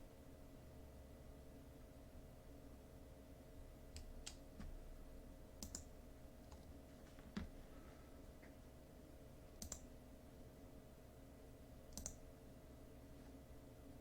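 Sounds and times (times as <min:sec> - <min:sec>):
faint electrical hum: 0:00.0 - 0:14.0
computer mouse clicking: 0:03.9 - 0:04.7, 0:05.6 - 0:05.9, 0:09.6 - 0:09.9, 0:11.9 - 0:12.2.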